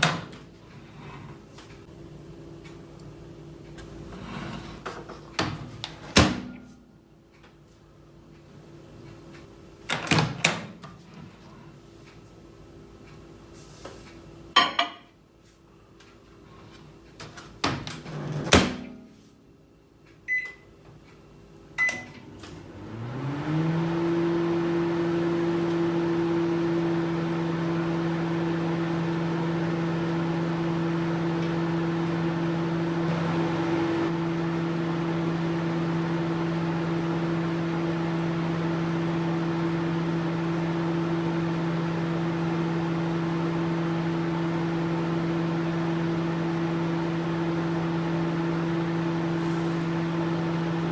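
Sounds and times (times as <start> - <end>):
microwave oven humming: 0.0 - 50.9
keypad beeps: 20.3 - 20.6.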